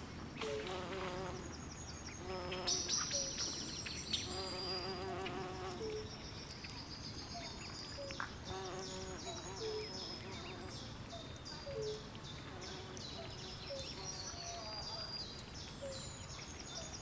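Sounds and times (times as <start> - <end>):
faint low hiss: 0.0 - 17.0
high insect buzz: 4.3 - 5.9.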